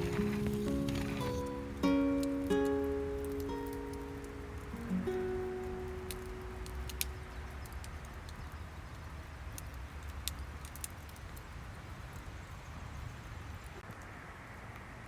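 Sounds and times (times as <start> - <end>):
faint hiss: 0.0 - 15.0
sharp clicks and ticks: 6.0 - 11.4.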